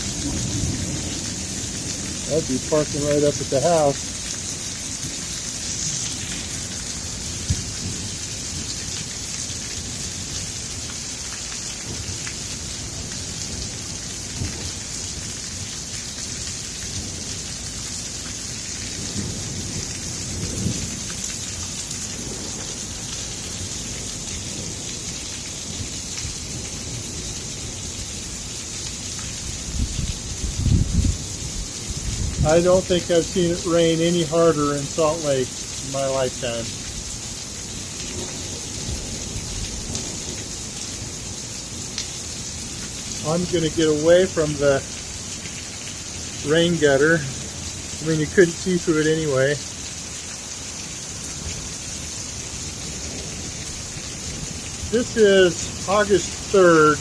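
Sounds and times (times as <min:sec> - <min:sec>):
thunder rumbling: 0:00.0 - 0:08.8
heavy rain pouring: 0:00.0 - 0:57.0
water running off gutter: 0:00.0 - 0:57.0.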